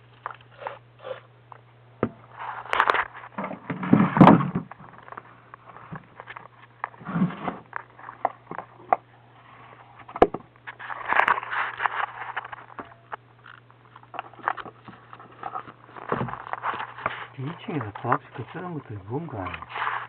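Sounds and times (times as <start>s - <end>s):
low electrical hum: 0.0s - 20.0s
rustling: 9.4s - 20.0s.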